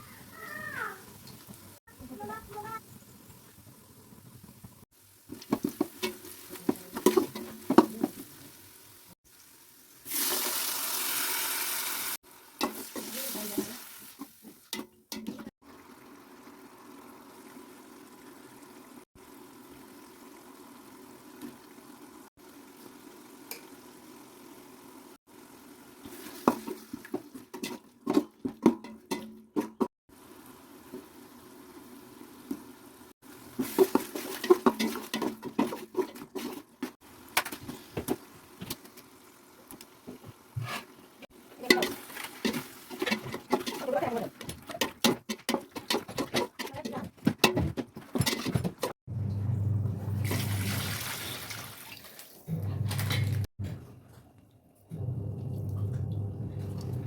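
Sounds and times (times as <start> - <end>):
utensils clinking against a pot: 5.4 - 8.2, 14.7 - 15.5, 26.4 - 29.9, 33.6 - 36.6, 41.6 - 49.0
liquid pouring: 50.2 - 52.5.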